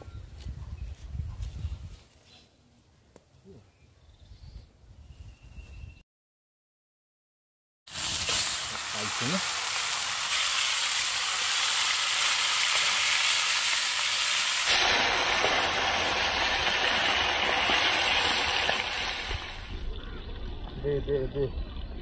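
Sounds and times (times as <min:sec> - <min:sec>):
chicken sizzling in hot oil: 0:07.9 - 0:19.8.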